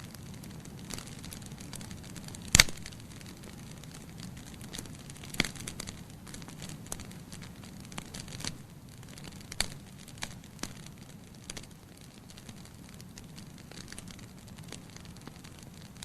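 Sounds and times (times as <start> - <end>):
logs crackling in fireplace: 0.0 - 16.0.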